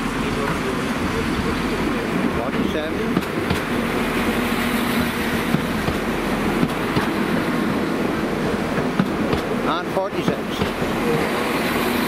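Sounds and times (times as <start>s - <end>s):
diesel train engine: 0.0s - 12.0s
wheels clicking over rails: 8.4s - 11.5s.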